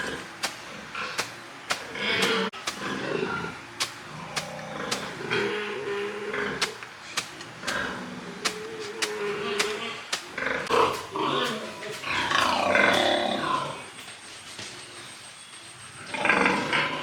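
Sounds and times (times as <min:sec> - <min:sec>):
pigs grunting and squealing: 0:16.1 - 0:17.0.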